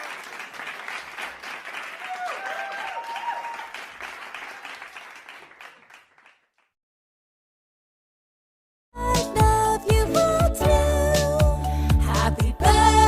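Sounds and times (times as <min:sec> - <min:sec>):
children cheering and clapping: 0:00.0 - 0:06.5
children's high shouts: 0:02.1 - 0:03.6.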